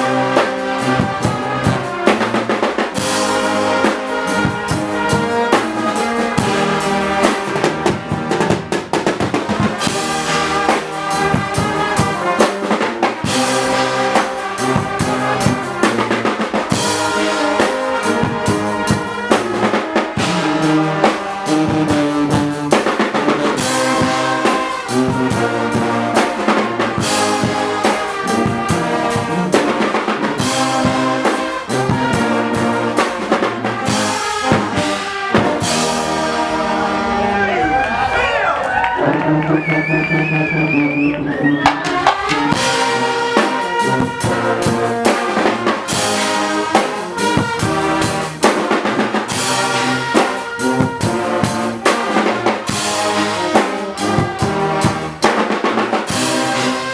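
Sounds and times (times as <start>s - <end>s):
bass drum and snare beats: 0.0s - 36.5s, 41.6s - 56.9s
brass band playing: 0.0s - 56.9s.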